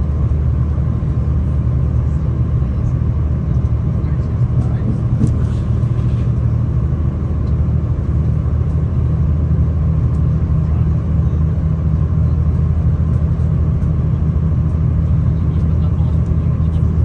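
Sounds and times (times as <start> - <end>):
train rumbling from inside carriage: 0.0 - 17.0.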